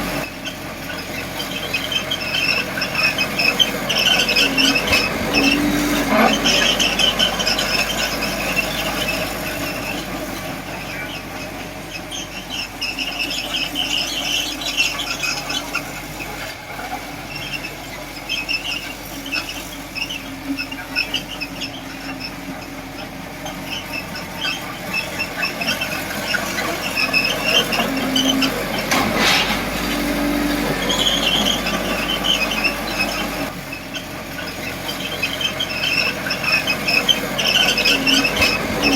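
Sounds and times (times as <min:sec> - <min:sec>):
bulldozer engine rumble: 0:00.0 - 0:38.9
bulldozer tracks squealing: 0:00.0 - 0:38.9.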